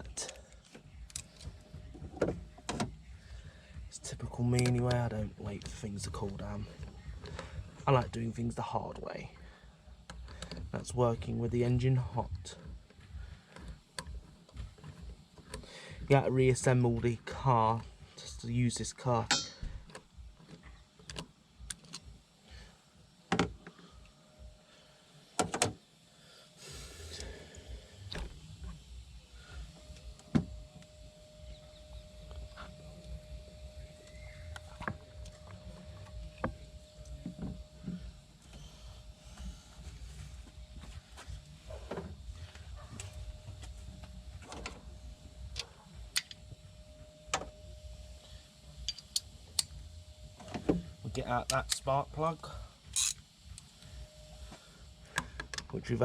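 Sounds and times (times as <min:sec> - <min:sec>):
faint steady tone: 0:00.0 - 0:56.0
hand tools clicking and clinking: 0:48.8 - 0:49.8, 0:52.9 - 0:53.3.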